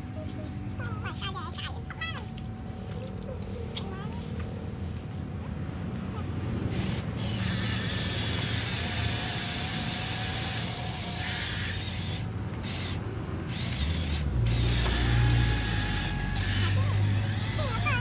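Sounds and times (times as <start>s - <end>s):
toy truck motor hum: 6.1s - 18.0s
whining tones: 6.2s - 18.0s.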